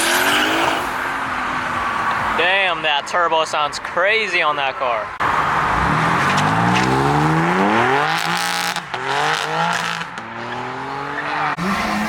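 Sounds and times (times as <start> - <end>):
car engine accelerating: 5.2 - 12.0.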